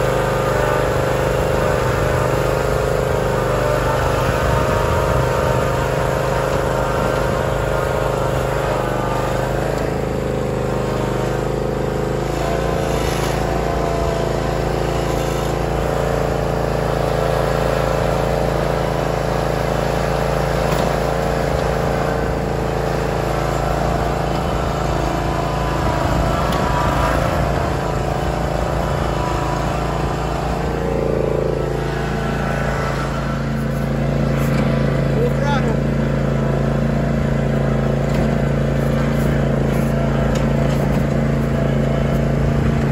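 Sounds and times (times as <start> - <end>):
mower engine running: 0.0 - 42.9.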